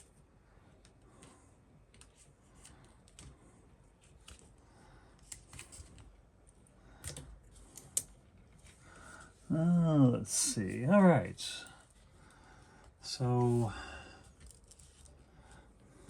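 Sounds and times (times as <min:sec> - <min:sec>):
tape rustling: 0:14.3 - 0:15.7.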